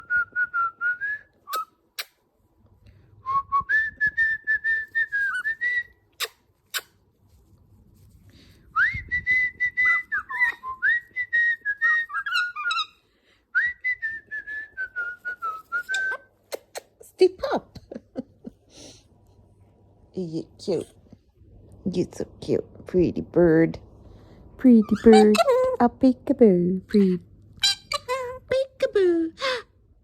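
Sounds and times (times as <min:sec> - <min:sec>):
cockatoo whistling: 0:08.8 - 0:13.0, 0:13.6 - 0:16.3.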